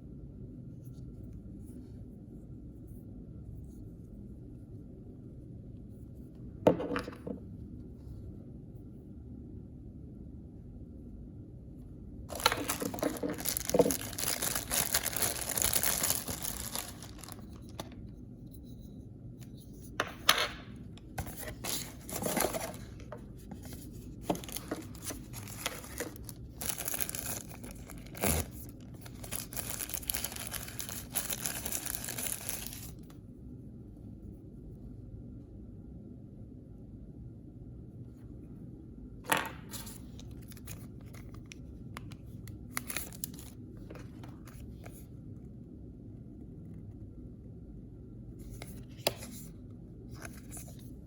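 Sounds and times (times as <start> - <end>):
packaging torn and crinkled: 12.3 - 18.0, 24.3 - 33.1, 39.8 - 41.3, 42.5 - 43.6.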